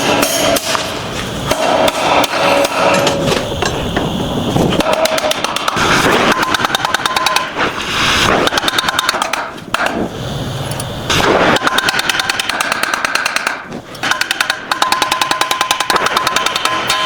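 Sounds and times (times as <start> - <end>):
rapid hammer strikes on steel: 0.0 - 10.1, 11.1 - 17.0.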